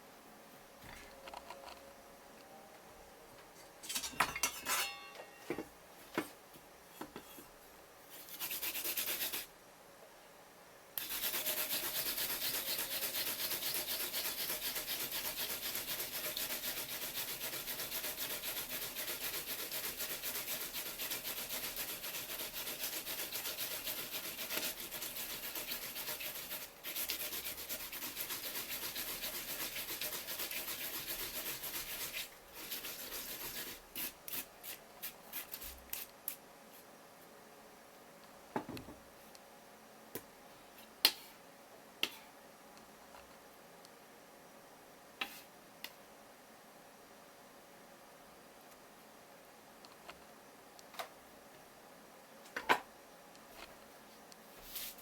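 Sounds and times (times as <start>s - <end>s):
rasping scraping on a surface: 11.0s - 34.5s.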